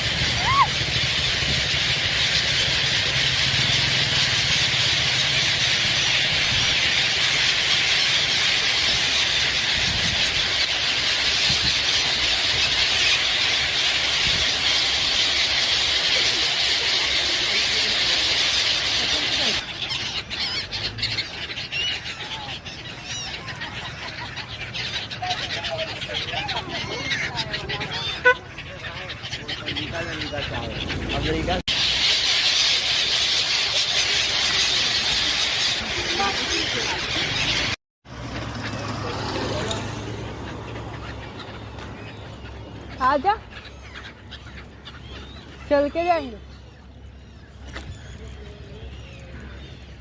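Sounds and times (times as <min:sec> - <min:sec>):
flock of birds screeching: 0:00.0 - 0:50.0.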